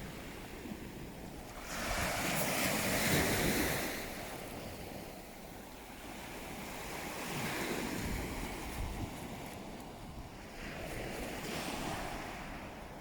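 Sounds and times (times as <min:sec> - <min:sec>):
sea waves surging: 0:00.0 - 0:13.0.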